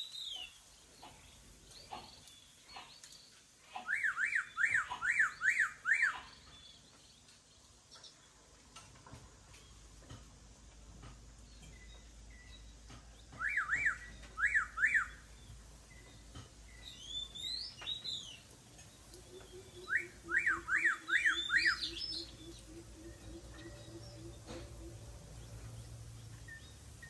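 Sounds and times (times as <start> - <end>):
bird curling whistled notes: 3.8 - 6.2, 13.3 - 18.4, 19.2 - 25.0.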